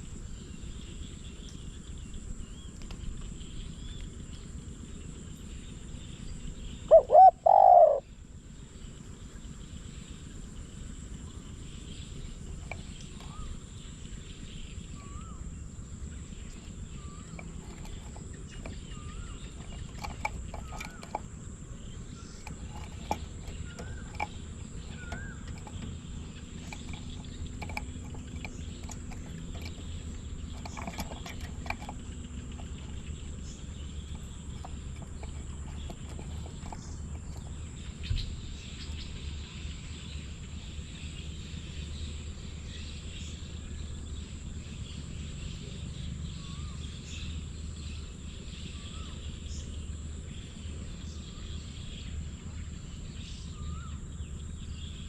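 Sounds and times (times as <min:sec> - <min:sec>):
small bird chirping: 0:00.0 - 0:55.0
faint clicks: 0:02.8 - 0:04.4, 0:16.4 - 0:38.2.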